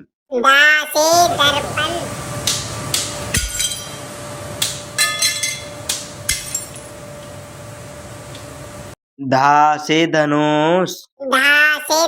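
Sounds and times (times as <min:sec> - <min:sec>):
glass clinking: 0:03.3 - 0:04.0, 0:05.0 - 0:07.0.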